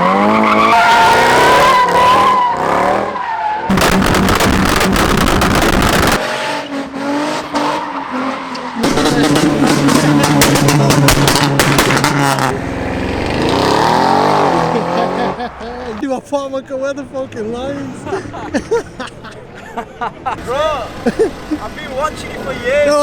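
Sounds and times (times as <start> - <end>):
tyres squealing: 0.0 - 4.5, 5.4 - 12.5
car engines revving: 0.0 - 16.0, 17.3 - 23.0.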